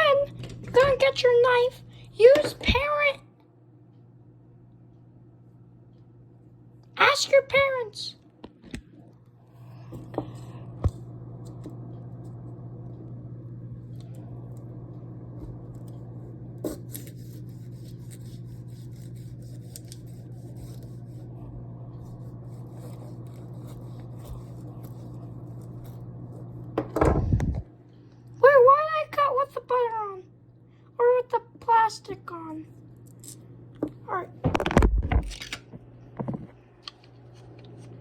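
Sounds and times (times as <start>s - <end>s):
appliance electrical hum: 0.0s - 38.0s.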